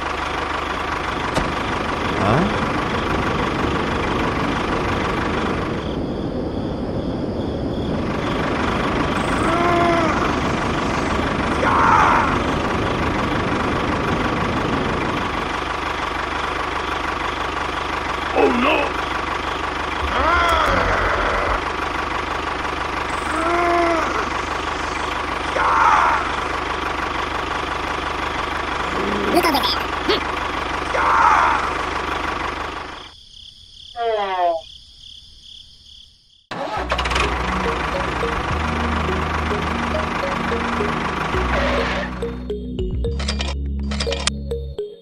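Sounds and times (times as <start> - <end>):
small engine running: 0.0 - 5.9, 8.4 - 33.1, 36.5 - 44.4
voice-like calls: 9.2 - 12.6, 20.0 - 21.8, 23.1 - 26.5, 28.8 - 31.9, 41.3 - 42.4.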